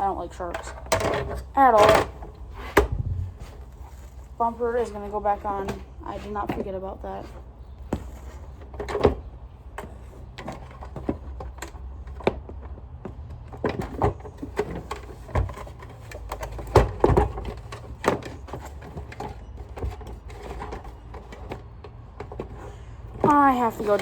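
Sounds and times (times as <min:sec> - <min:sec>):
plastic parts clicking and knocking: 0:00.0 - 0:03.0, 0:04.9 - 0:24.0
steady low rumble: 0:02.2 - 0:06.1.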